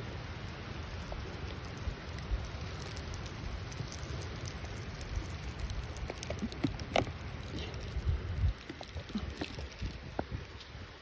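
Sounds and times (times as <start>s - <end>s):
steady rain: 0.0s - 11.0s.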